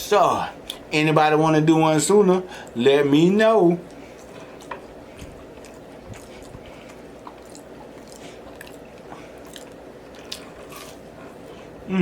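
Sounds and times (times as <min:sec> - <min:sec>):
man chewing food: 0:03.8 - 0:12.0.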